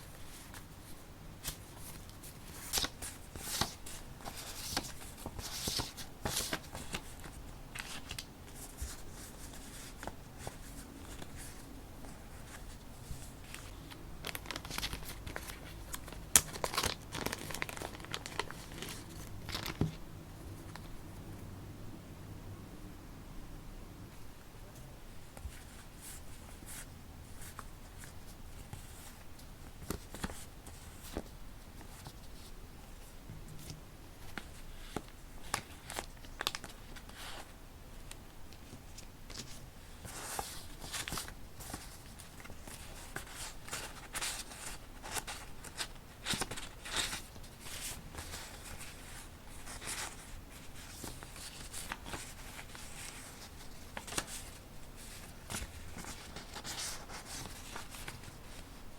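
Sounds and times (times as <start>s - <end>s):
paper rustling and crinkling: 0.0s - 20.0s, 33.5s - 37.5s, 38.1s - 58.9s.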